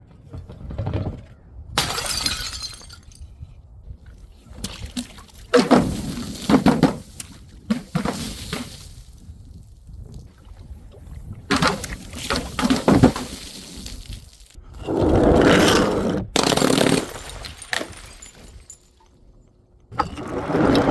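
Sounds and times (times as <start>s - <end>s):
glass bottles smashing: 1.8s - 3.3s, 16.4s - 19.1s
glass shards tinkling: 17.2s - 19.1s.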